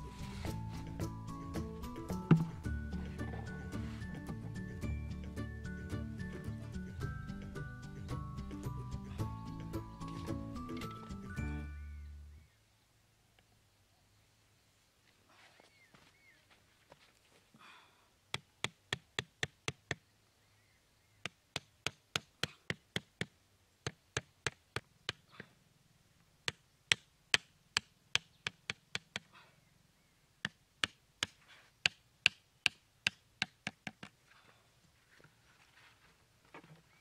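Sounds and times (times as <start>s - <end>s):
hammer knocking wooden stake: 2.2s - 2.6s, 18.3s - 20.0s, 21.2s - 25.5s, 26.4s - 29.3s, 30.4s - 34.2s.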